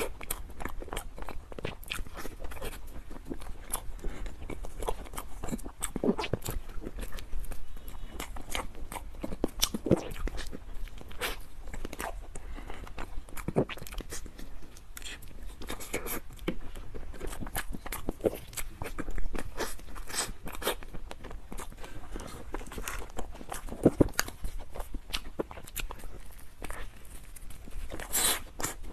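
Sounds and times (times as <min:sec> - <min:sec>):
wet chewing and mouth smacks: 0:00.0 - 0:28.9.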